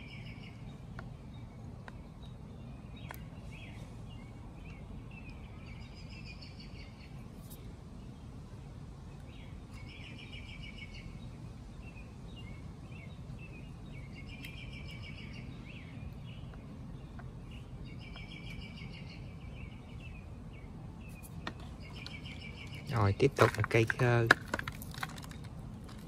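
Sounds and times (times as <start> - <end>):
bird trilling and chirping: 9.3 - 24.2.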